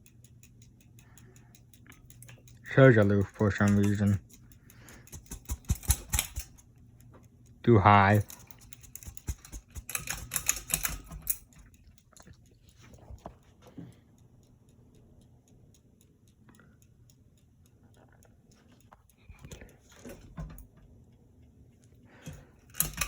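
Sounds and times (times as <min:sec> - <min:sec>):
rapid clicking and rattling: 0:00.0 - 0:13.8, 0:22.2 - 0:23.0
ceiling fan humming: 0:00.0 - 0:23.0
faint regular ticking: 0:00.0 - 0:23.0.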